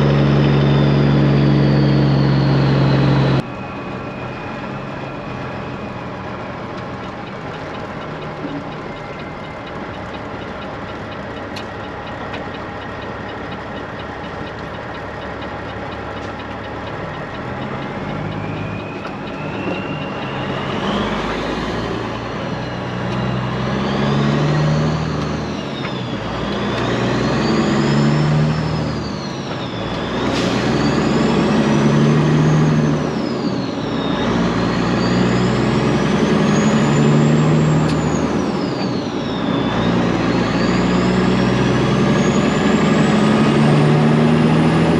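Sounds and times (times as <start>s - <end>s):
diesel truck engine accelerating: 0.0s - 44.9s
turbo whistle: 0.2s - 6.5s, 18.1s - 35.6s.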